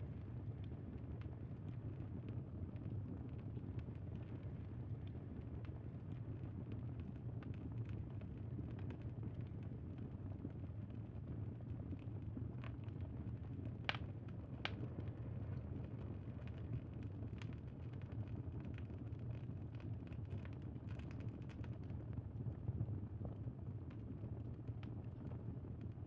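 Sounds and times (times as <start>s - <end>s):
campfire crackling and popping: 13.9s - 14.9s.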